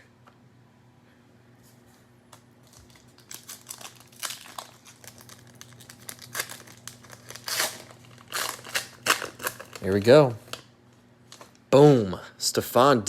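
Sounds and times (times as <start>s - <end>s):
cellophane crinkling and tearing: 2.6s - 10.6s.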